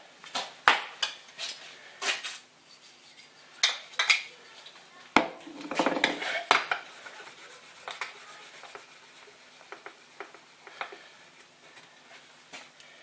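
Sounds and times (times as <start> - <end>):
metal tools clinking and scraping: 2.2 - 4.8.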